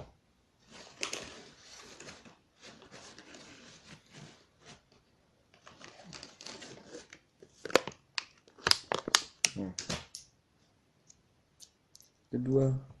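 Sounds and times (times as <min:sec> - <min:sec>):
packaging rustling: 0:05.6 - 0:09.4.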